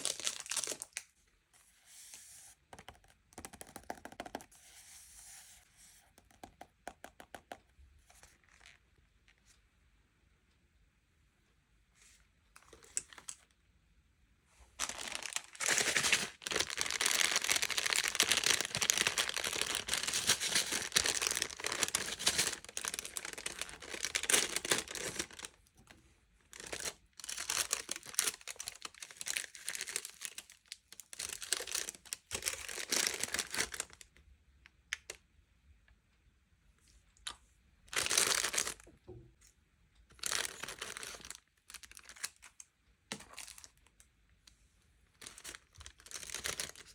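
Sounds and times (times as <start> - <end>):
packaging crinkling and tearing: 0.0 - 1.0, 14.8 - 25.6, 26.5 - 34.0, 37.9 - 38.8, 40.2 - 43.8, 45.2 - 46.9.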